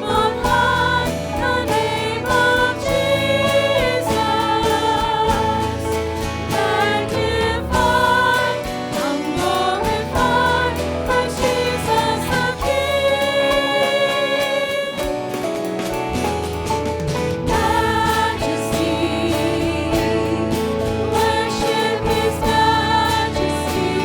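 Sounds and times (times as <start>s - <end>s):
person singing worship melody: 0.0s - 15.1s
instrumental accompaniment with beat: 0.0s - 24.0s.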